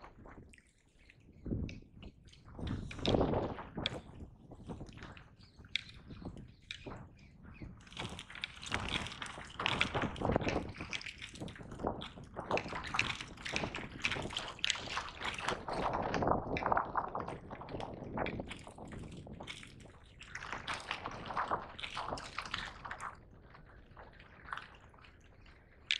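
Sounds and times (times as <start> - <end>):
water splashing against kayak: 7.8 - 25.9.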